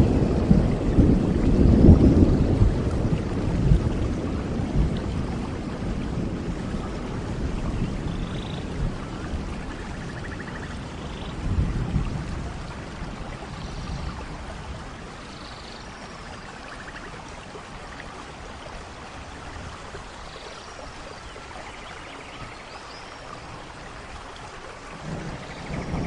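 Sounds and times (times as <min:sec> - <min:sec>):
thunder rumbling: 0:00.0 - 0:15.1, 0:24.9 - 0:26.0
heavy rain: 0:00.0 - 0:26.0.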